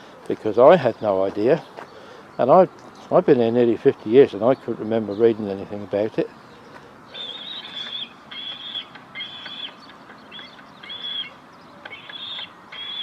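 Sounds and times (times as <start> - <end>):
seagull chick calling: 6.5 - 13.0.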